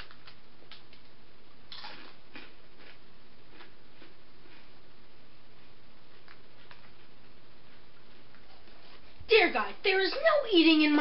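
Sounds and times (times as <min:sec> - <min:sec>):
person crunching a snack: 0:01.7 - 0:04.8.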